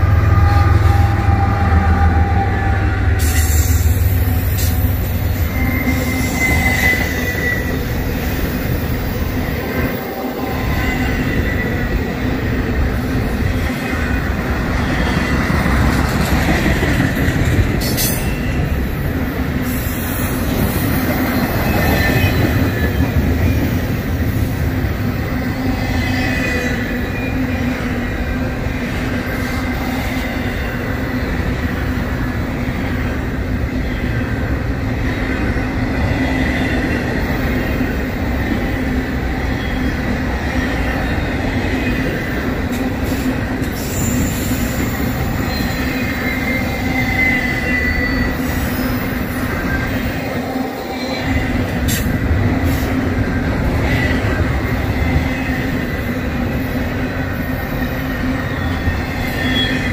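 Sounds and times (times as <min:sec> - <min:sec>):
freight train wheels rumbling: 0:00.0 - 0:59.9
high wheel squeal: 0:00.2 - 0:12.0, 0:43.1 - 0:52.0, 0:57.1 - 0:59.9.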